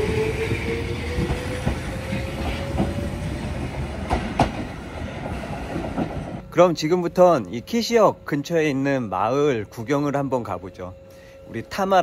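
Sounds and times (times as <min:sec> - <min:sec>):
train rumble: 0:00.0 - 0:12.0
wheels clacking over rail joints: 0:01.1 - 0:06.4.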